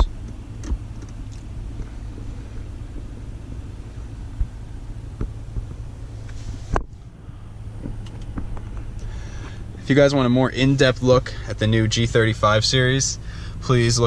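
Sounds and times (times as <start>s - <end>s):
car engine idling: 0.0s - 14.0s
faint clicks of car controls: 0.2s - 3.3s, 7.8s - 9.8s.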